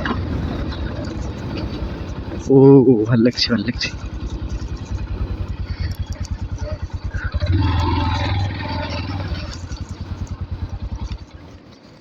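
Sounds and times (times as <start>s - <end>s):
motorcycle engine thudding: 3.4s - 12.0s.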